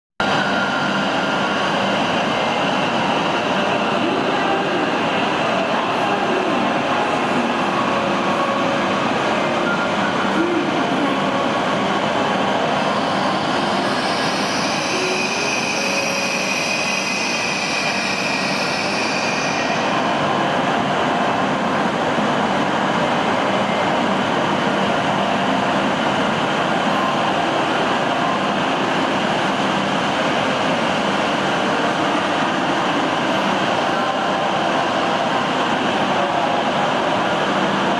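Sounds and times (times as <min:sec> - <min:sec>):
high squeal: 0:00.2 - 0:03.5, 0:12.8 - 0:20.2
electric train rumbling: 0:00.2 - 0:37.9.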